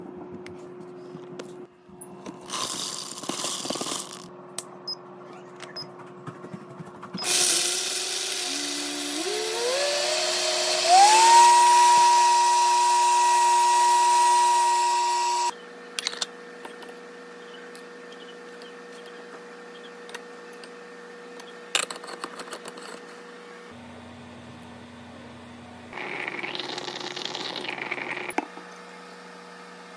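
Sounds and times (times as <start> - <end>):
blender motor whining: 7.2 - 15.6.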